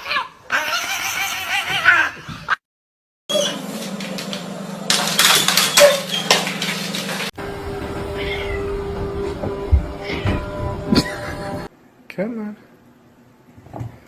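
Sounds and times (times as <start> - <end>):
cat meowing: 0.0 - 2.3, 8.2 - 8.6.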